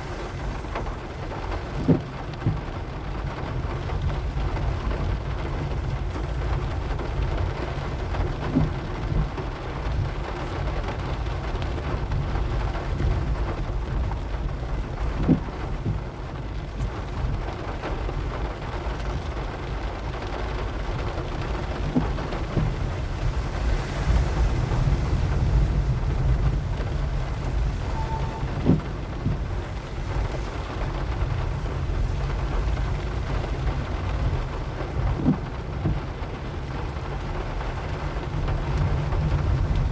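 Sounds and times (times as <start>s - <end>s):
car engine and tyres rumbling: 0.0s - 39.9s
rain hissing: 0.0s - 39.9s.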